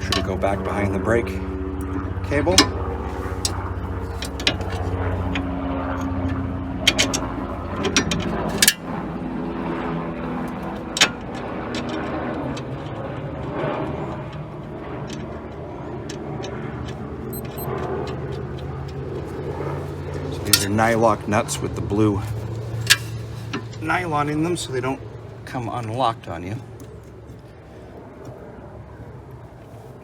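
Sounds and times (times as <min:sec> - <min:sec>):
steady low hum: 0:00.0 - 0:30.0
metallic tool clicks and clinks: 0:17.3 - 0:17.7.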